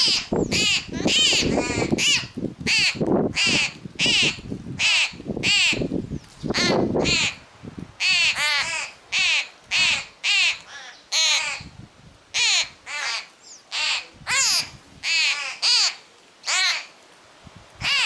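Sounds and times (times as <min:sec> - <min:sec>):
young bird harsh begging calls: 0:00.0 - 0:05.8, 0:12.4 - 0:16.9.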